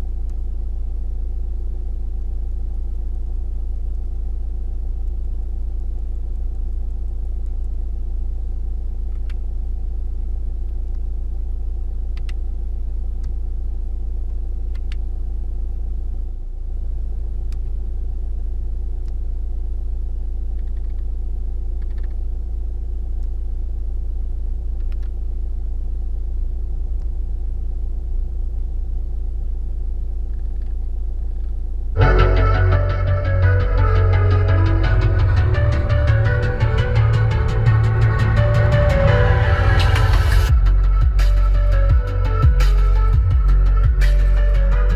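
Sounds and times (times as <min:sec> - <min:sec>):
faint light ticks: 0:00.2 - 0:00.4, 0:05.0 - 0:07.8, 0:09.0 - 0:09.4, 0:12.1 - 0:12.4, 0:14.2 - 0:15.1, 0:17.5 - 0:17.8, 0:19.0 - 0:19.2, 0:21.8 - 0:22.2, 0:23.2 - 0:23.4, 0:24.8 - 0:25.2
diesel engine idling: 0:32.0 - 0:44.9
music: 0:32.0 - 0:44.9.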